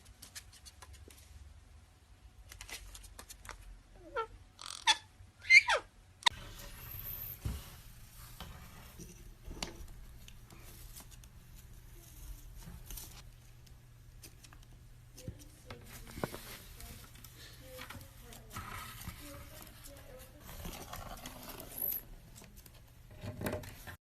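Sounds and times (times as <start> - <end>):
faint scratching and rustling: 6.3 - 24.0.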